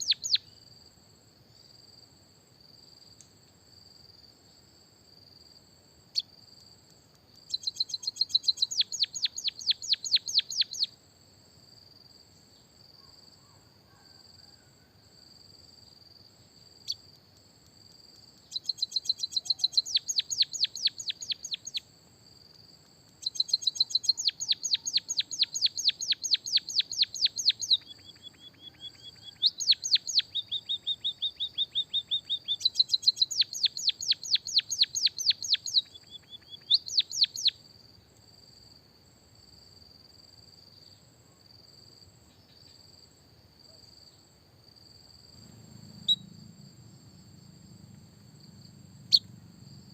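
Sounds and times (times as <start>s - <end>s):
songbird singing rapid trills: 0.0s - 0.7s, 6.1s - 6.4s, 7.3s - 11.0s, 16.4s - 21.9s, 23.1s - 37.8s, 45.1s - 49.9s.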